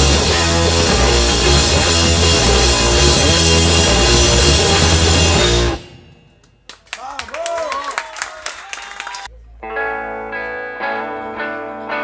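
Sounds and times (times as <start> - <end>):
live rock band playing: 0.0 - 6.1, 9.6 - 12.0.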